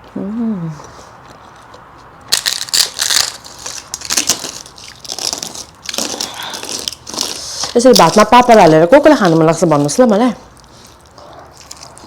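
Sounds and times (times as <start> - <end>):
crisp wafer being crunched: 2.3 - 8.3.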